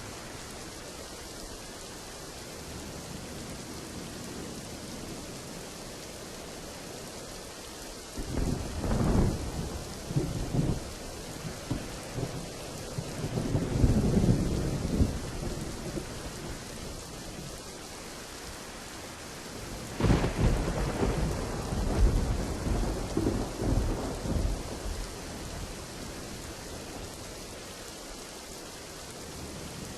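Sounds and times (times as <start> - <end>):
steady rain: 0.0 - 29.9
thunder rumbling: 8.2 - 17.5, 19.6 - 27.4.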